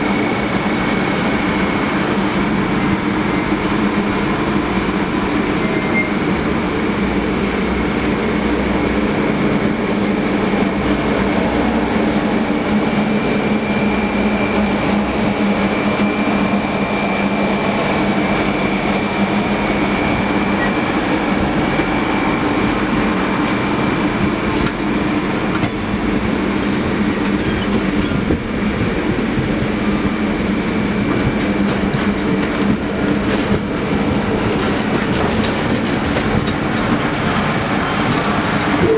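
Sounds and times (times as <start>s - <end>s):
train rumbling on rails: 0.0s - 38.9s
high wheel squeal: 5.5s - 6.2s.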